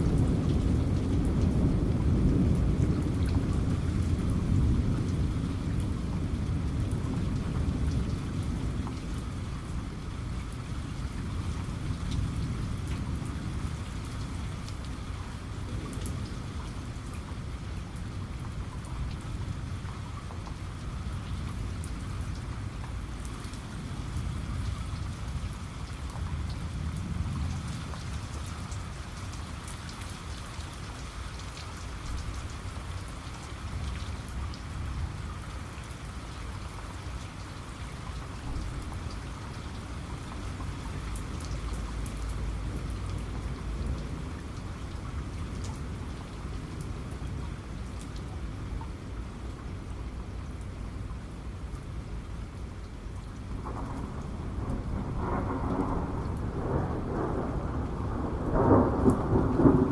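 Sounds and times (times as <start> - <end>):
thunder rumbling: 0.0 - 9.9, 53.5 - 59.9
heavy rain pattering: 0.0 - 59.9.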